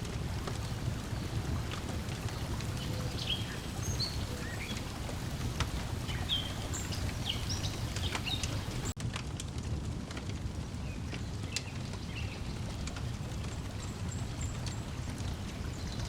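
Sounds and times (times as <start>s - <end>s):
water lapping at shore: 0.0s - 9.0s
wood fire crackling: 0.0s - 16.0s
bird chirps: 2.2s - 8.9s.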